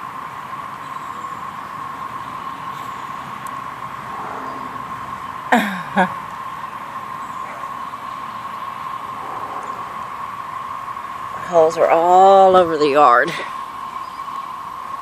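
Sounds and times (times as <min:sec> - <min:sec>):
cicadas droning: 0:00.0 - 0:15.0
short downward sweeping sounds: 0:03.5 - 0:06.3.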